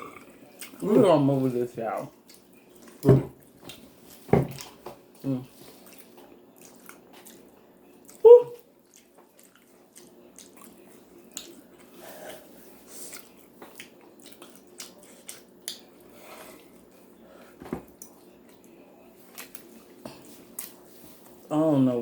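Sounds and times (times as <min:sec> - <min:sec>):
chewing with wet mouth clicks: 0:02.2 - 0:03.0, 0:05.8 - 0:08.2, 0:08.8 - 0:11.9, 0:13.1 - 0:16.7, 0:17.9 - 0:19.9.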